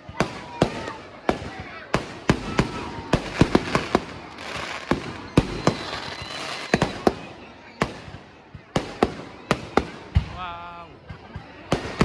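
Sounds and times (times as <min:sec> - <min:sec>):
crackling hiss of fireworks: 0:00.0 - 0:12.0.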